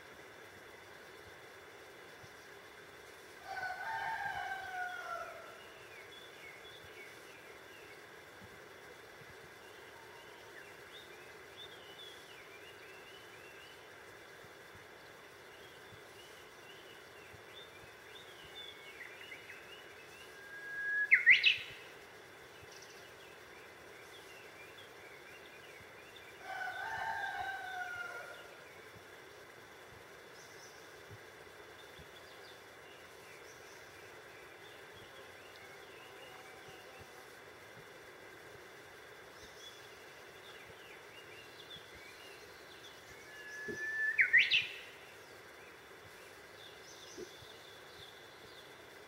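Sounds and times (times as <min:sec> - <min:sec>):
faint bird chirping: 0:00.9 - 0:49.0
faint bird chirps: 0:15.5 - 0:29.0, 0:39.2 - 0:49.0
lower falling bird call: 0:15.6 - 0:22.0, 0:41.0 - 0:45.5
bird whistled song phrase: 0:20.2 - 0:21.8, 0:43.2 - 0:44.9.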